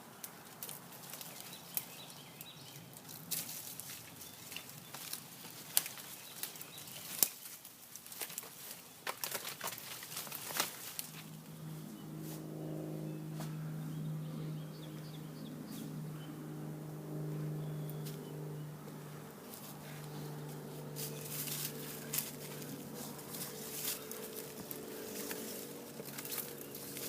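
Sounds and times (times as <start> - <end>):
low engine hum: 10.6 - 27.0.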